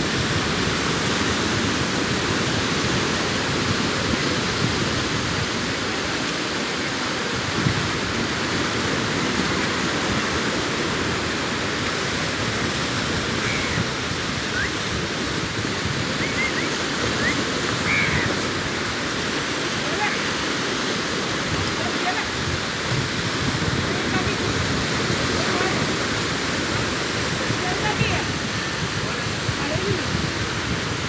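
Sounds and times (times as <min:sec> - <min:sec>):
sea surf washing onto beach: 0:00.0 - 0:31.0
faint high chirps: 0:16.2 - 0:18.5.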